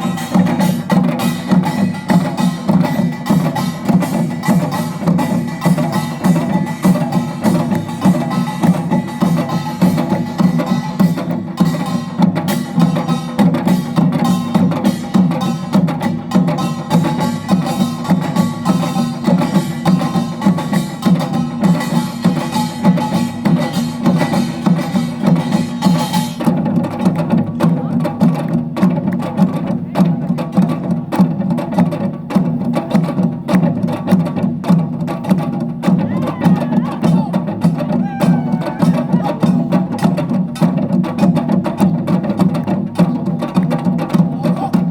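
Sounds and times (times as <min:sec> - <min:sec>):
hourglass drums: 0:00.0 - 0:26.4, 0:35.8 - 0:41.4
barrel drums: 0:00.0 - 0:44.9.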